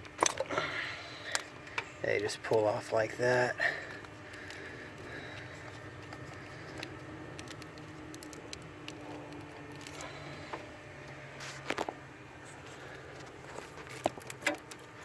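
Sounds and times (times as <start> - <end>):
low steady hum: 0.0 - 15.0
plastic connectors clicking: 3.3 - 10.1.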